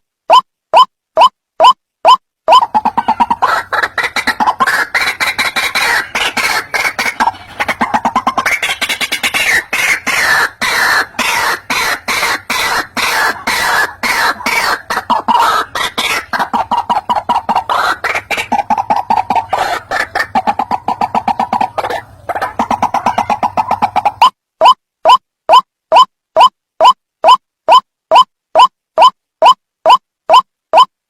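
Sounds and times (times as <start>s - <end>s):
waterhen calls: 2.5s - 24.3s.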